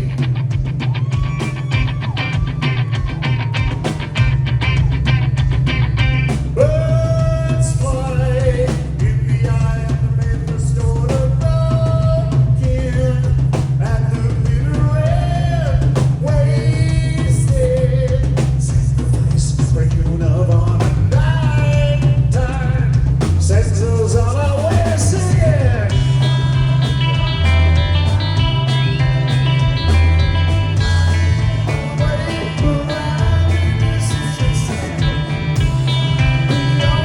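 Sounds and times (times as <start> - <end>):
electric guitar: 0.0 - 8.8, 20.6 - 37.0
bass: 0.0 - 37.0
drums: 0.0 - 37.0
lead vocal singing: 6.5 - 37.0.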